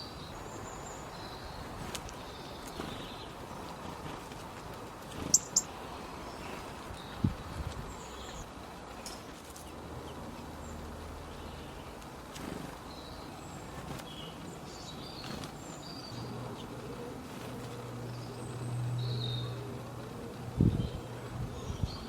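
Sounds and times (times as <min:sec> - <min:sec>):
small birds chirping: 0:00.0 - 0:22.0
steady background hiss: 0:00.0 - 0:22.0.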